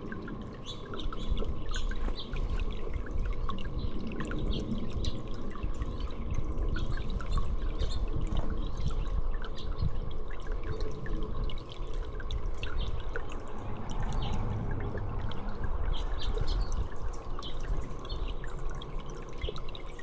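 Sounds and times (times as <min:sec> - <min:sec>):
water trickling and dripping: 0:00.0 - 0:20.0
low rumble: 0:13.3 - 0:17.2.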